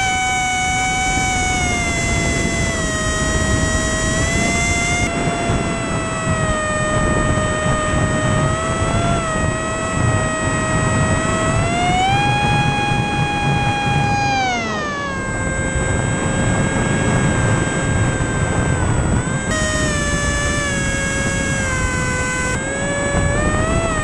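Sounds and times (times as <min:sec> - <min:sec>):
small motor whining: 0:00.0 - 0:24.0.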